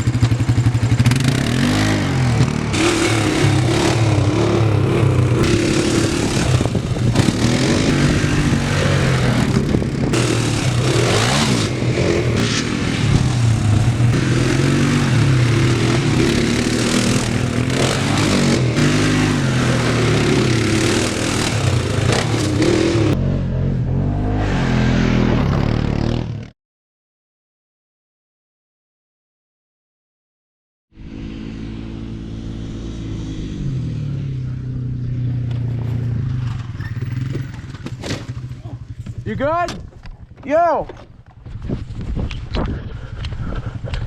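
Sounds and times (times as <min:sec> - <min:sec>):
motorcycle engine revving: 0:00.0 - 0:26.5, 0:31.0 - 0:44.0
wind rush over microphone: 0:03.1 - 0:14.3, 0:41.0 - 0:44.0.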